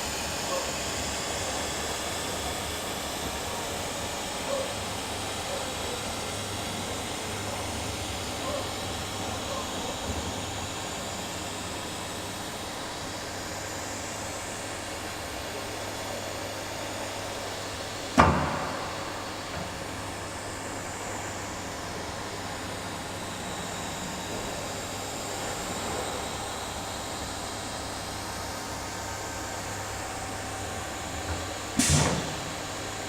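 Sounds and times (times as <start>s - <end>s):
cnc router carving: 0.0s - 16.7s
sharp loud knock: 18.2s - 19.2s.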